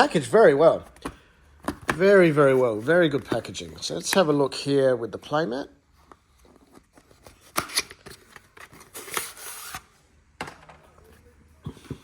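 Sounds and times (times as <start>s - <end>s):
packaging rustling scrape: 6.6s - 9.9s.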